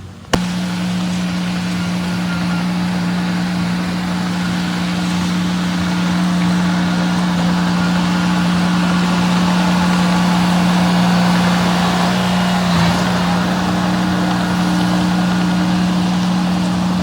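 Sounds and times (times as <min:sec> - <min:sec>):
heavy machinery diesel engine: 0:00.0 - 0:17.0.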